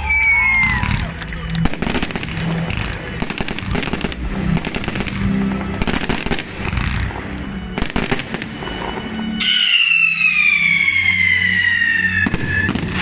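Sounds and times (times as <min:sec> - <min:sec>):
fireworks crackling bangs: 0:00.1 - 0:13.0
hiss of sparking fountains: 0:09.4 - 0:13.0.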